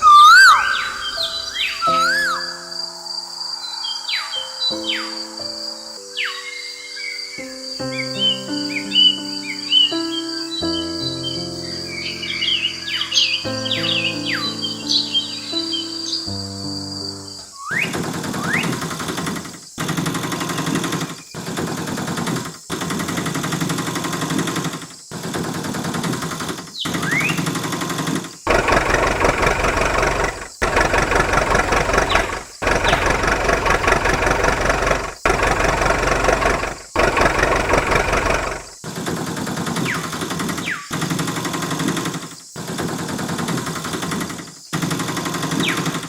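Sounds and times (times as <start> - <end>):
short rising whistles: 0.0 - 2.8
small electric motor humming: 28.5 - 38.8.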